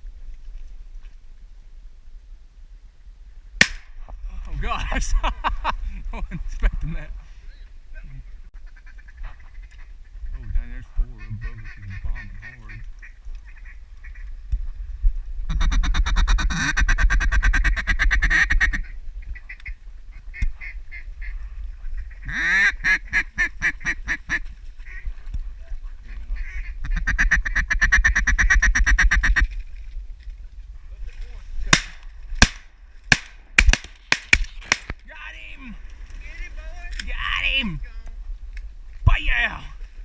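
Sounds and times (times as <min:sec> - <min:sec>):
shotgun blasts: 0:03.6 - 0:04.0, 0:31.7 - 0:35.0
duck call quacking: 0:15.5 - 0:19.6, 0:22.0 - 0:25.0, 0:26.4 - 0:29.4.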